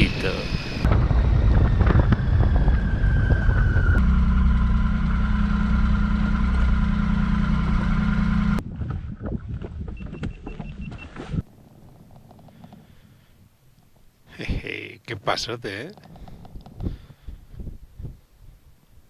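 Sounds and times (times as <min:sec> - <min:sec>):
motorcycle engine running: 0:00.7 - 0:08.6.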